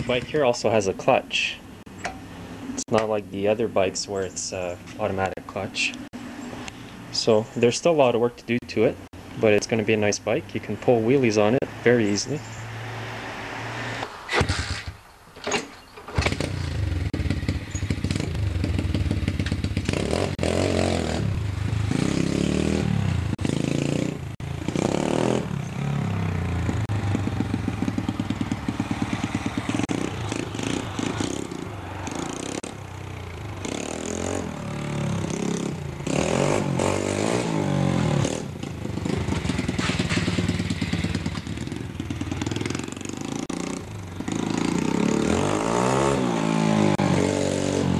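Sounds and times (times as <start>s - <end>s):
motorbike engine revving: 11.2s - 15.0s, 16.1s - 47.9s.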